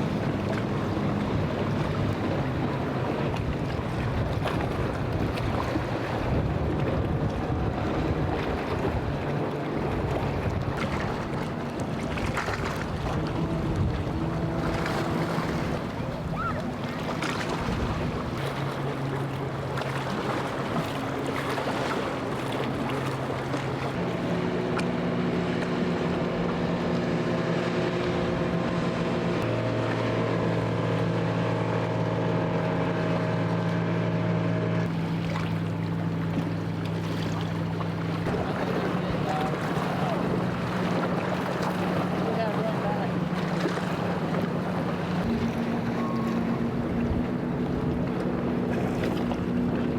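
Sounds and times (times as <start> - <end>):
boat engines humming: 0.0 - 49.9
waves washing: 0.0 - 49.9
wind noise on microphone: 3.1 - 11.4, 12.1 - 16.7.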